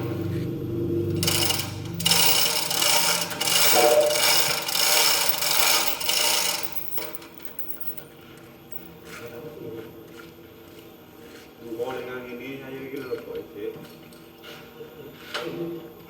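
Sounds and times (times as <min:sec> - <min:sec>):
hand tool rasping: 0:01.2 - 0:08.0.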